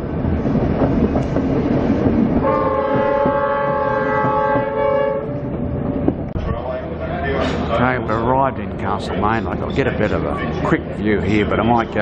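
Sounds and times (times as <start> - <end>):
train rumbling on rails: 0.0 - 12.0
locomotive horn blast: 2.4 - 6.2.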